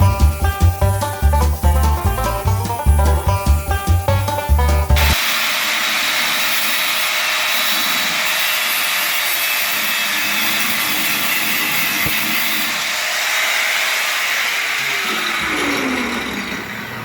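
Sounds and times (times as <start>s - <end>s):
banjo music: 0.0s - 5.2s.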